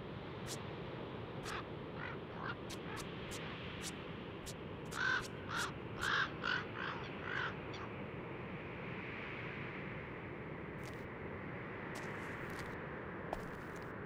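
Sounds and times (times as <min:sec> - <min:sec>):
bird calling: 0:01.4 - 0:03.9, 0:04.9 - 0:07.9.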